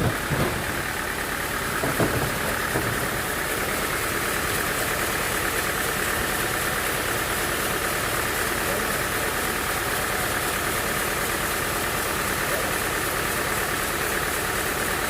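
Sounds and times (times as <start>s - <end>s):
short knocks: 0.0s - 3.9s
sawmill machinery droning: 0.0s - 15.0s.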